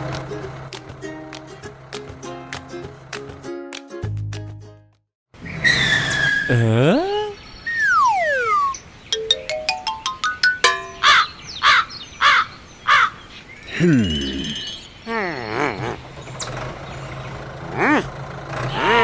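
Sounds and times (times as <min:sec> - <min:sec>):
falling slide whistle: 0:05.4 - 0:06.7, 0:07.7 - 0:08.8
short squawking calls: 0:05.4 - 0:06.7, 0:07.7 - 0:08.8
wobbling falling voice-like slides: 0:07.7 - 0:08.8
rising plinking notes: 0:07.7 - 0:11.4.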